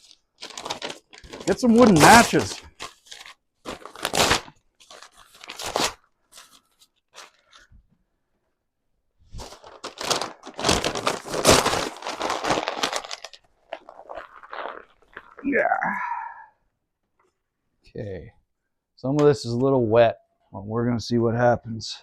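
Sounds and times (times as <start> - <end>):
kindling crunching and crumpling: 0.0 - 6.0, 9.4 - 15.8.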